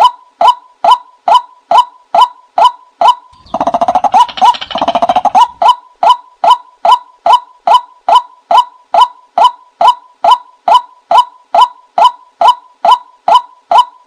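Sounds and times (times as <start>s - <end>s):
rattling bird chatter: 3.3s - 5.6s.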